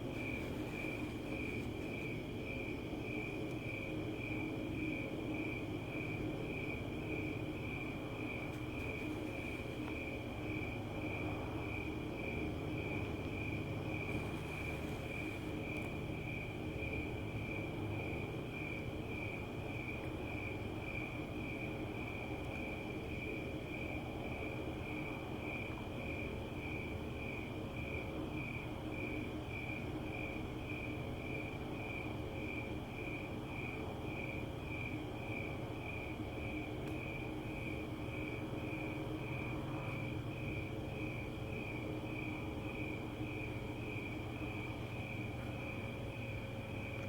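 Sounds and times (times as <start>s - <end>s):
crickets chirping: 0.0s - 47.0s.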